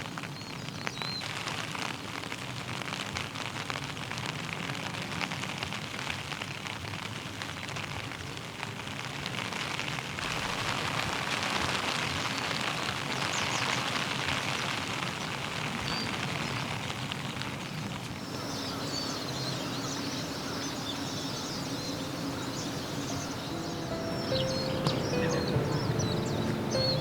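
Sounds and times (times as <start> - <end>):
steady rain falling: 0.0 - 27.0
small birds chirping: 17.6 - 27.0.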